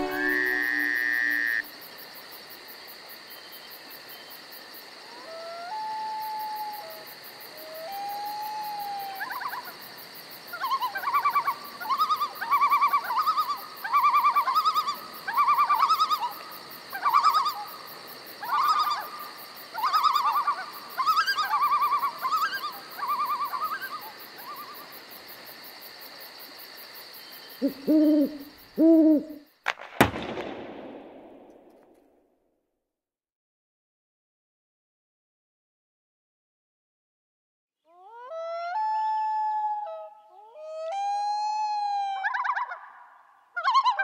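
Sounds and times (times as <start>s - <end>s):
wavering animal calls: 0.0s - 1.7s, 10.5s - 17.8s, 18.4s - 24.9s.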